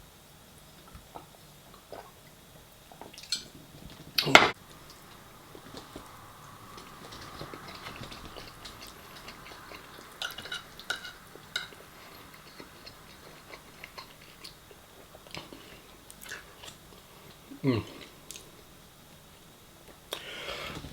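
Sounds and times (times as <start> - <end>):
person chewing food: 2.9 - 18.7.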